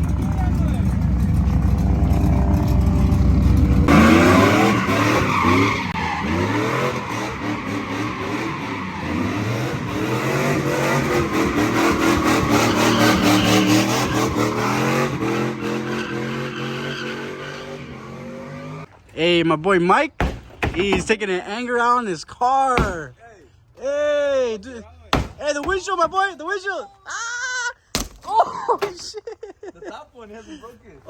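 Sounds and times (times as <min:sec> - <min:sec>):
engine revving: 0:00.0 - 0:18.9
tyres squealing on pavement: 0:03.9 - 0:18.9.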